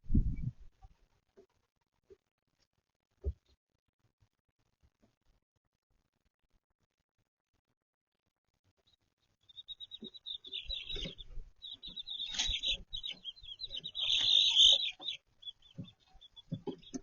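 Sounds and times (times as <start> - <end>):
baby chicks peeping: 8.7 - 17.0.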